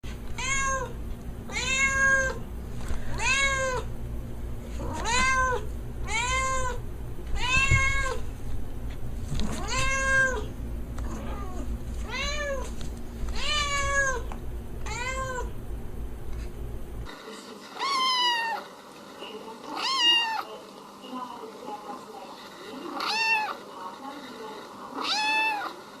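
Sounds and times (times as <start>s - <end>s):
faint low hum: 0.0s - 26.0s
kitten meowing: 4.8s - 6.8s, 14.9s - 15.5s, 23.0s - 23.6s.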